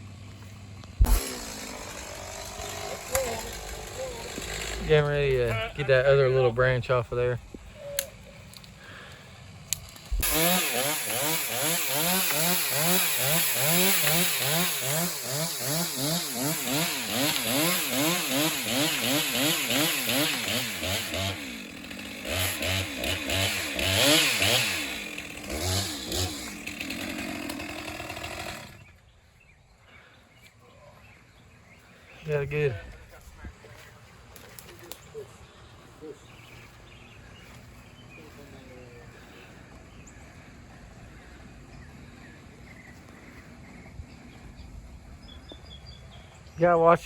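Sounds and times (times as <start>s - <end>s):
chainsaw cutting branch: 0.8s - 6.0s, 9.4s - 28.9s.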